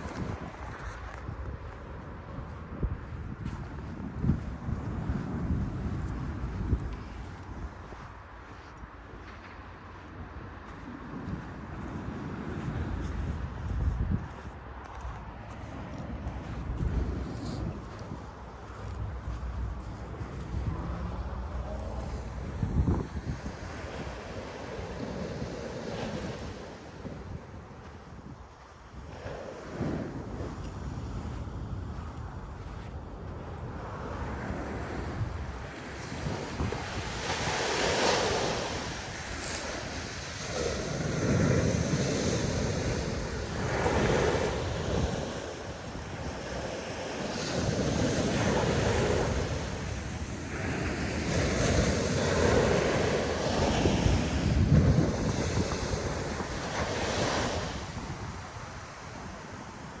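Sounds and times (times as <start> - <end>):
wind on microphone: 0.0 - 60.0
ocean surf breaking on beach: 20.4 - 28.1, 33.8 - 60.0.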